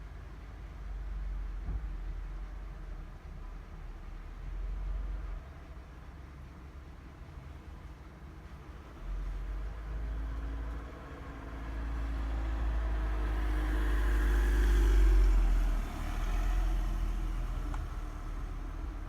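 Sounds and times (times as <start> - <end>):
vehicle passing with low rumble: 9.0 - 19.0.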